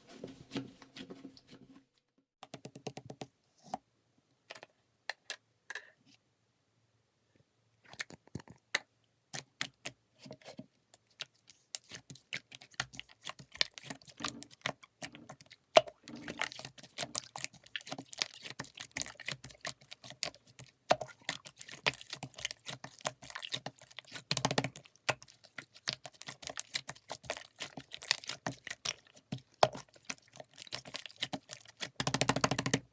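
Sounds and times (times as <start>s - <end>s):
rapid clicking and tapping: 31.3s - 32.9s.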